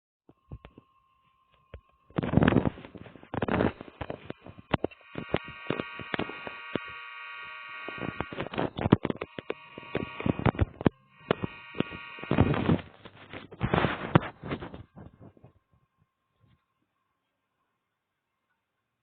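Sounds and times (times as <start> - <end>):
microphone bumps and crackles: 1.6 - 6.9, 8.0 - 15.6.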